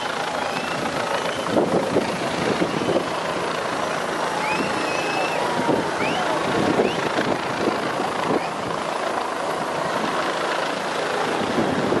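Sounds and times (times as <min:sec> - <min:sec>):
helicopter flying overhead: 0:00.0 - 0:12.0
crowd shouting: 0:04.2 - 0:06.6.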